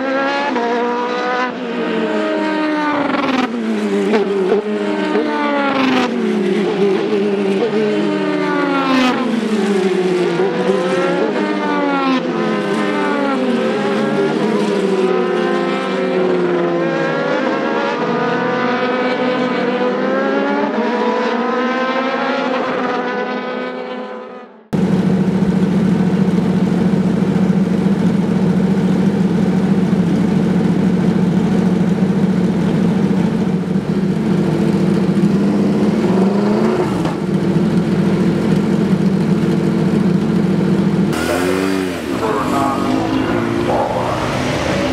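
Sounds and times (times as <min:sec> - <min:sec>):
race cars passing at speed: 0:00.0 - 0:27.1, 0:28.8 - 0:44.9
single engine running steadily: 0:24.8 - 0:44.9.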